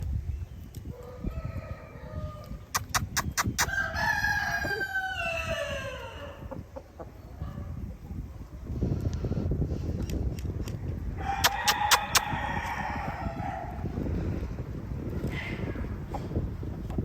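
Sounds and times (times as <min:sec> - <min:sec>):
rooster crowing: 0:01.1 - 0:02.6, 0:03.7 - 0:06.5, 0:11.2 - 0:13.8.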